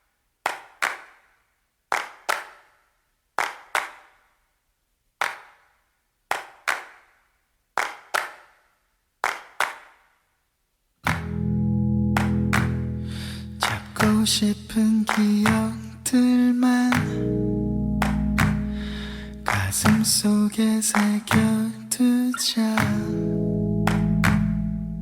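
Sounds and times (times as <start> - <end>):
echoing hand claps: 0.4 - 4.4, 5.2 - 10.2, 11.0 - 11.5, 12.1 - 14.4, 15.0 - 16.0, 16.9 - 17.3, 18.0 - 20.3, 20.9 - 21.8, 22.8 - 23.2, 23.9 - 24.8
sustained music chord: 11.2 - 13.9, 17.1 - 19.7, 23.1 - 25.0.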